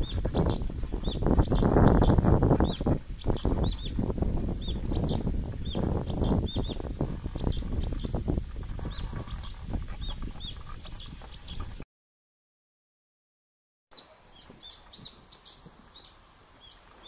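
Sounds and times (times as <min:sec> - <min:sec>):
birds chirping: 0:00.0 - 0:11.8, 0:13.9 - 0:17.0
wind rumble on microphone: 0:00.0 - 0:11.8.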